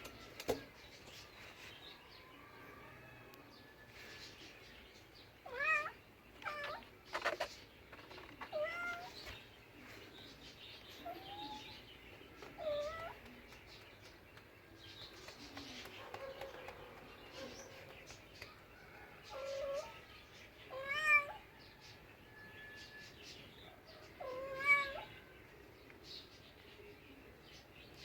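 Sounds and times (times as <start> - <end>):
cat meowing: 5.4 - 6.8, 8.5 - 9.1, 20.7 - 21.4, 24.2 - 25.1.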